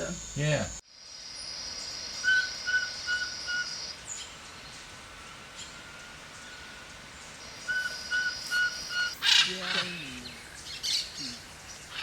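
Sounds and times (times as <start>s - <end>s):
forest ambience: 0.0s - 12.0s
forest bird whistling: 2.2s - 4.4s, 7.6s - 12.0s.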